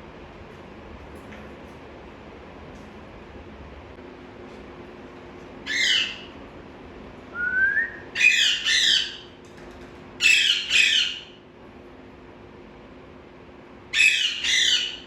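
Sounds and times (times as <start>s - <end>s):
parakeet squawking: 5.6s - 6.3s, 8.2s - 9.3s, 10.2s - 11.4s, 13.9s - 15.0s.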